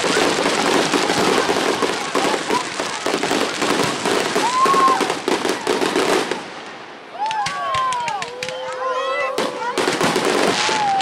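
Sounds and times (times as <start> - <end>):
fireworks crackling: 0.0 - 11.0.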